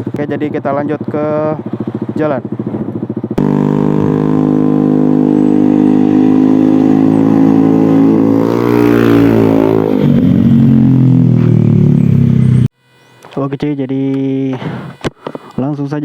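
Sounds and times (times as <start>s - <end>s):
scooter engine revving: 3.2s - 12.8s.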